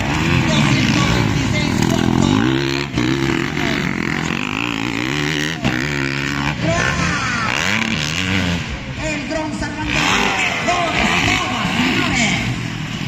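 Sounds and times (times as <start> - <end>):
motocross bike engines revving: 0.0 - 13.0.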